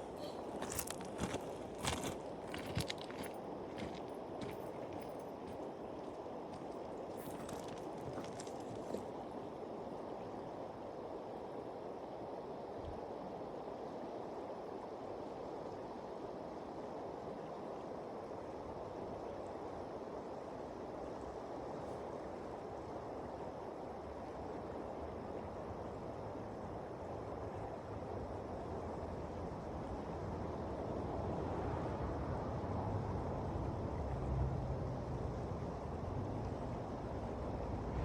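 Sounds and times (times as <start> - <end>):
river current rushing: 0.0 - 9.6.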